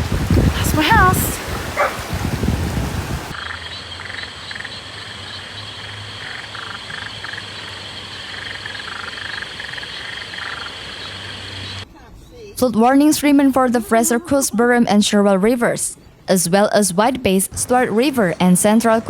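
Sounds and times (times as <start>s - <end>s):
frogs croaking: 3.3s - 11.9s.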